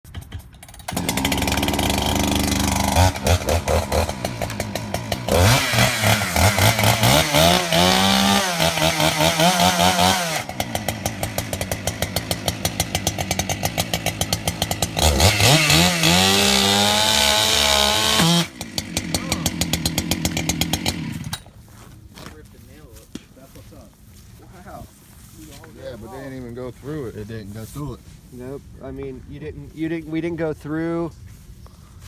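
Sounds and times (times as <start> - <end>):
chainsaw revving: 0.1 - 21.5.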